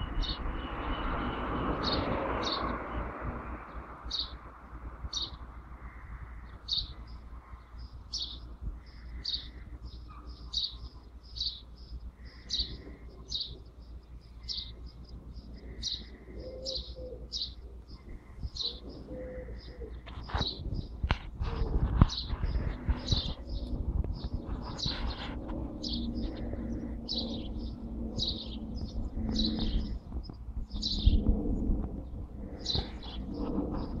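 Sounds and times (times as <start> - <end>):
steady low rumble: 0.0 - 34.0
bird chirping: 5.1 - 21.3, 22.0 - 31.3, 32.0 - 34.0.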